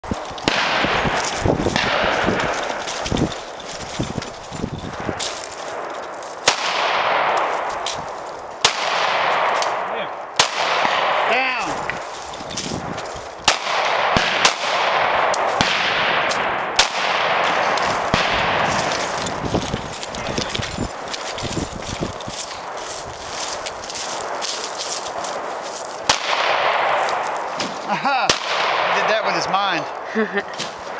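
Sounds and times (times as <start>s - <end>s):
pistol shots: 0.4s - 3.6s, 5.0s - 8.0s, 8.6s - 12.1s, 13.4s - 21.2s, 24.2s - 29.4s.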